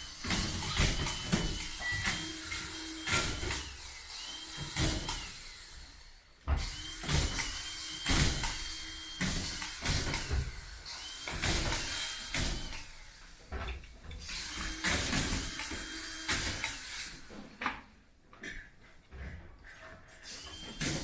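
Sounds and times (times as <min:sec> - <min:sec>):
screw gun whirring: 0:00.0 - 0:13.4, 0:14.1 - 0:17.4, 0:20.2 - 0:21.0.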